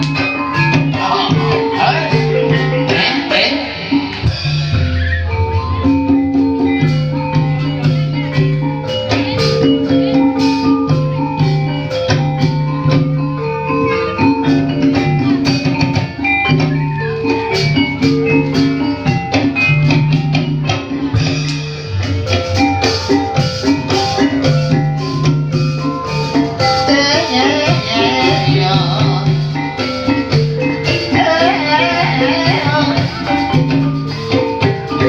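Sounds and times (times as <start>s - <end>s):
drums: 0.0s - 35.0s
struck pitched bars playing: 0.0s - 35.0s
person singing: 0.6s - 4.2s, 30.9s - 33.5s.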